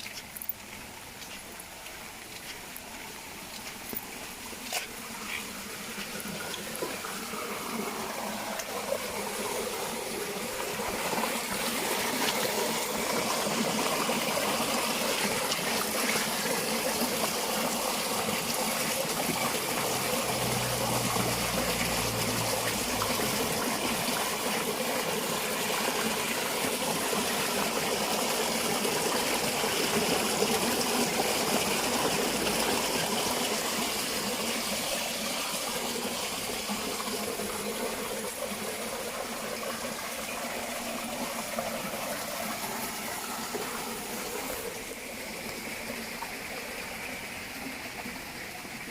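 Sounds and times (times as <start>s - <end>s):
water running and gushing: 0.0s - 48.9s.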